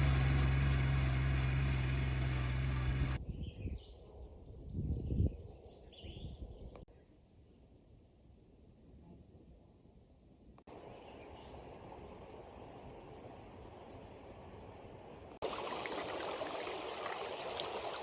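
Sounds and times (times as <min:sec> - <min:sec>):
birds chirping: 0:02.9 - 0:08.4
crickets buzzing: 0:06.9 - 0:10.7.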